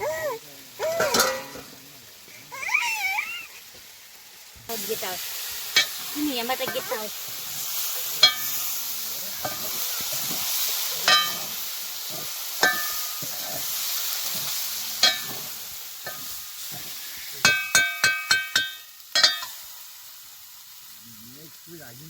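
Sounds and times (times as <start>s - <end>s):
food sizzling in a pan: 0.0s - 22.0s
metal spoon clinking on pan: 1.0s - 1.7s, 8.2s - 8.7s, 9.4s - 9.8s, 11.0s - 11.5s, 12.6s - 13.4s, 15.0s - 15.4s, 16.0s - 19.6s.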